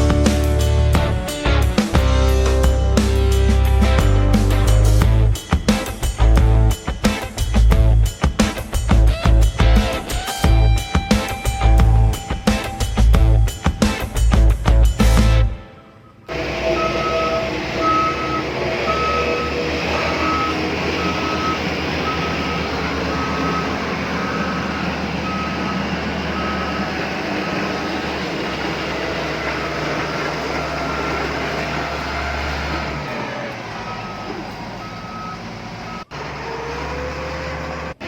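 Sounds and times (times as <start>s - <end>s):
reversing beeper: 15.7s - 37.7s.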